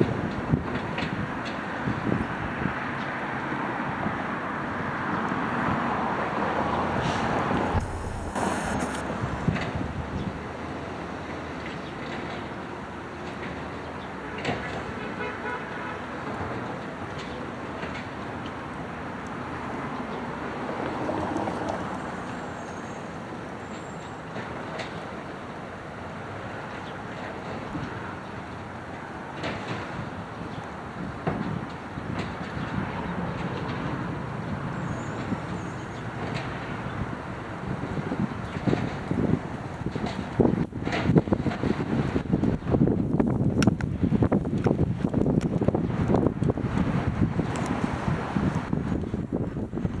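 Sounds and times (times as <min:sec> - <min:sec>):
wind noise on microphone: 0:00.0 - 0:12.6, 0:29.7 - 0:50.0
garbage truck engine running: 0:06.8 - 0:10.8.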